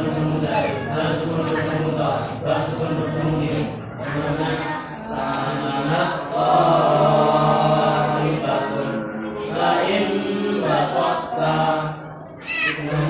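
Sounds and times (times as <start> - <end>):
voices singing or chanting: 0.0 - 13.0.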